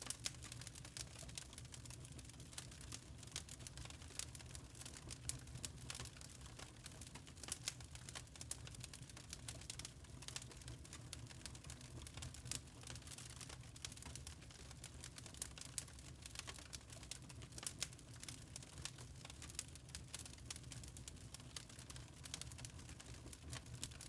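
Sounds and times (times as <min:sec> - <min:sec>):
burning charcoal crackling: 0:00.0 - 0:24.0.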